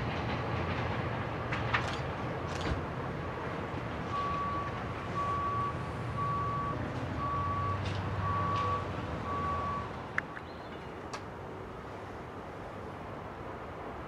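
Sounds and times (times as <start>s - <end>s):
back-up alarm beeping: 4.1s - 9.9s.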